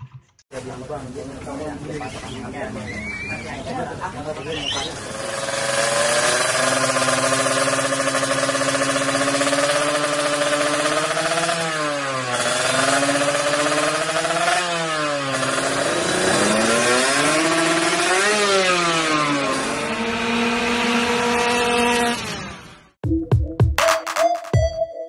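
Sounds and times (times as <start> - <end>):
motorcycle engine idling and revving: 3.5 - 23.0.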